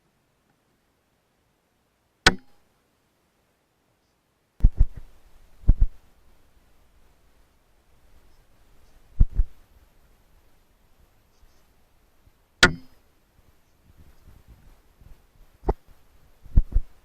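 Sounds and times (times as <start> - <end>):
dull low thumps: 4.6 - 6.0, 9.1 - 9.6, 13.9 - 17.0.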